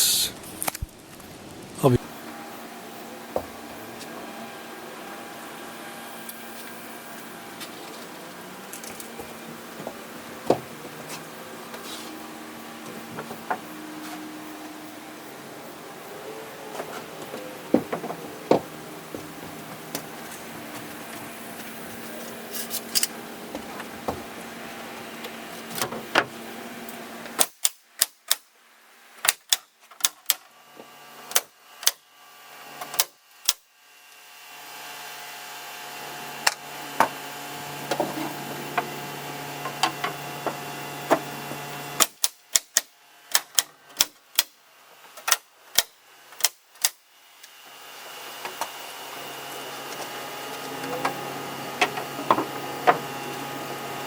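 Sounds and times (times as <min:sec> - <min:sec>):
nail gun shots: 0:27.4 - 0:28.5, 0:29.2 - 0:30.4, 0:42.0 - 0:44.5.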